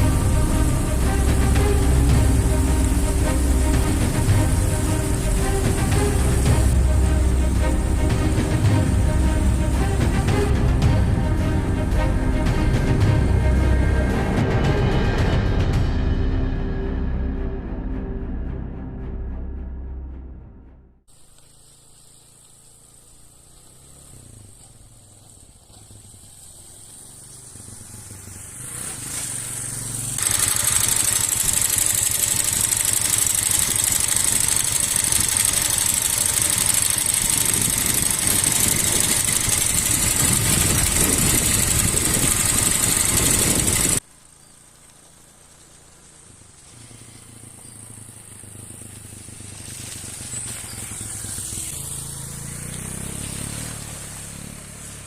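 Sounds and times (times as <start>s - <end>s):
motorcycle engine running: 0.0s - 15.6s, 21.1s - 55.0s
wind noise: 37.3s - 44.0s.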